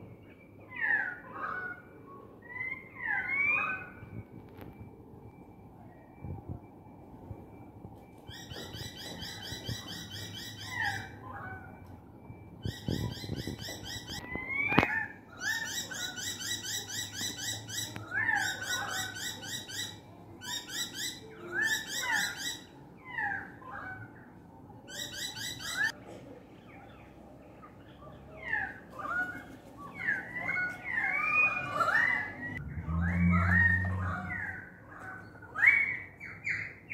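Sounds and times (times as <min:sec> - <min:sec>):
birds calling loudly: 0:08.3 - 0:24.3.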